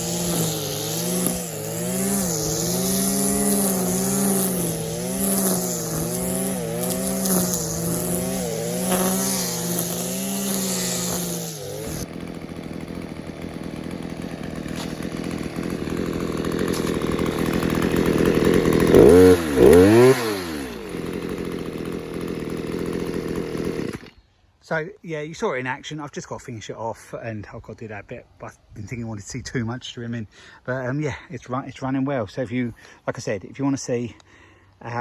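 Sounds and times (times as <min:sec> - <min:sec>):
line trimmer engine revving: 0:00.0 - 0:24.2.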